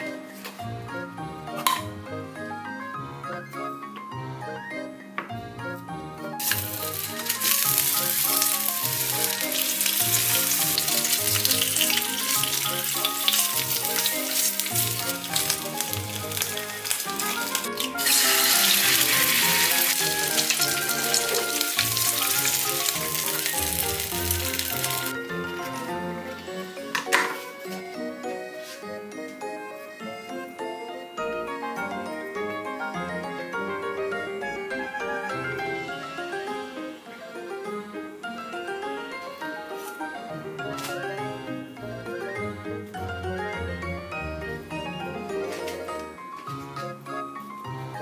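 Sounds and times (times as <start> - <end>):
egg sizzling in oil: 6.4 - 25.8
ham sizzling in a frying pan: 6.4 - 25.8.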